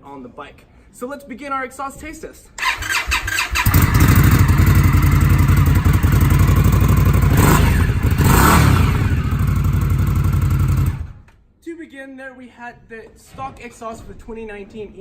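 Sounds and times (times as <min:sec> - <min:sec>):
motorcycle engine starting: 0:02.6 - 0:11.3
motorcycle engine running: 0:03.6 - 0:11.2.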